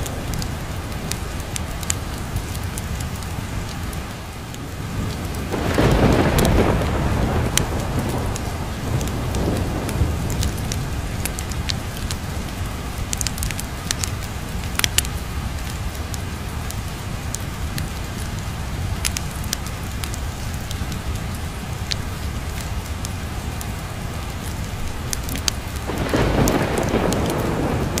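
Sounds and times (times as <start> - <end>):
rain pattering: 0.0 - 28.0
wood fire crackling and popping: 0.0 - 28.0
low thunder rumble: 4.6 - 22.9, 24.8 - 28.0.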